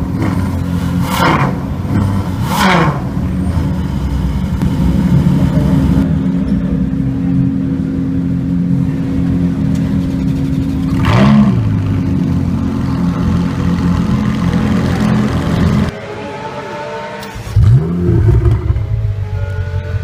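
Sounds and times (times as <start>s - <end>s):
sports car engine idling: 0.0s - 16.0s.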